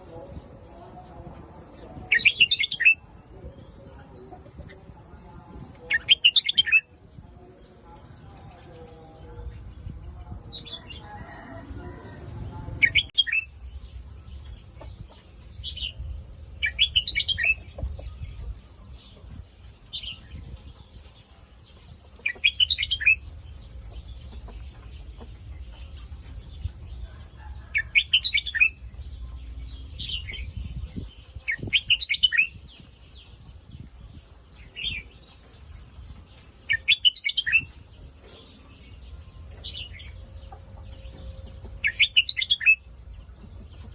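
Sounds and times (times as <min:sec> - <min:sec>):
bulbul singing: 0:36.2 - 0:43.9.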